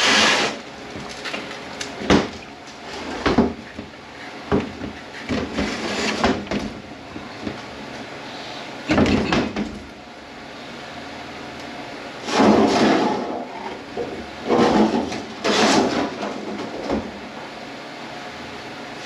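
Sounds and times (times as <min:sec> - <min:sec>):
tools and metal parts clattering: 0:14.5 - 0:17.1.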